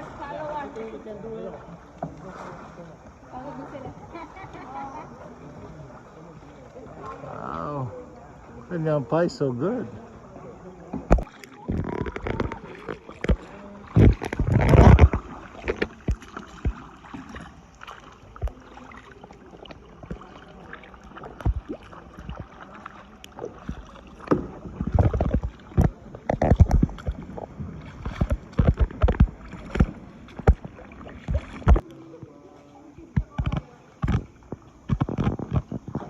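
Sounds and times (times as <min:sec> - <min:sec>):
paddle strokes and splashes: 0:00.0 - 0:36.0
paddle knocking against kayak: 0:10.8 - 0:36.0.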